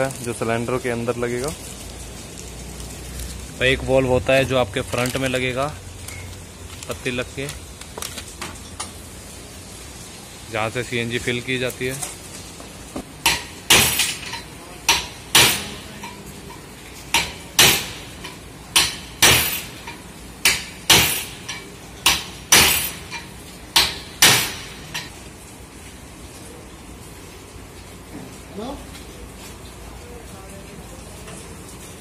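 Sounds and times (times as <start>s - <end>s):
hammer striking metal bracket: 13.2s - 16.2s, 17.1s - 25.1s.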